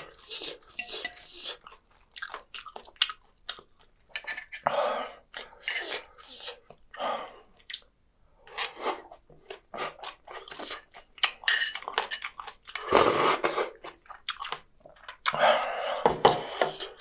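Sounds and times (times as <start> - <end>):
wet crunchy chewing: 0.0 - 3.9, 9.4 - 15.8.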